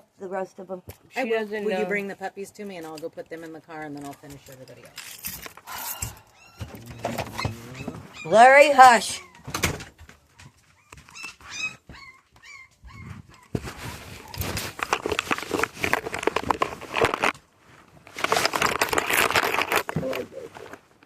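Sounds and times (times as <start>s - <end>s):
rustling handling noise: 1.0s - 8.2s, 12.8s - 21.0s
dog whimpering: 5.7s - 9.6s, 10.4s - 14.3s.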